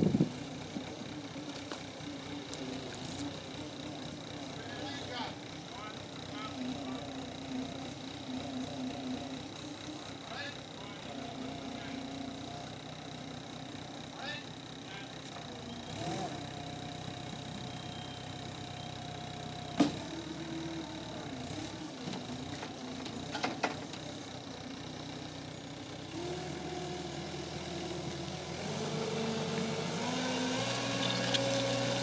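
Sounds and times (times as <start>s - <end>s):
loader diesel engine revving: 15.7s - 22.4s, 25.8s - 32.0s.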